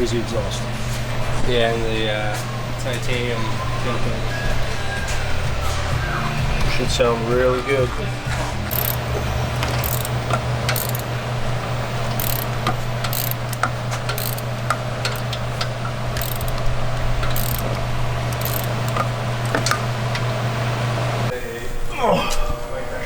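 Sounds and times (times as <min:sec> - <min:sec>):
steady low hum: 0:00.0 - 0:23.0
ratchet and hand tools clicking: 0:08.6 - 0:20.8.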